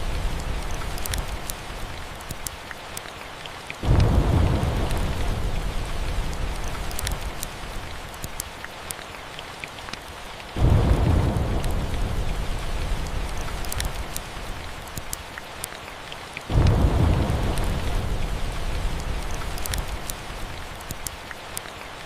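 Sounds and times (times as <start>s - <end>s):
fireplace crackling and popping: 0.0s - 15.8s, 16.4s - 21.8s
steady rain: 0.0s - 22.0s
thunder rumble: 3.8s - 7.8s, 10.6s - 14.7s, 16.5s - 20.6s.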